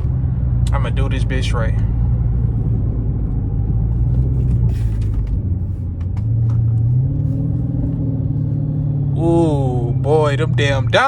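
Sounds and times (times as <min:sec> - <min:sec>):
car exhaust from inside cabin: 0:00.0 - 0:11.0.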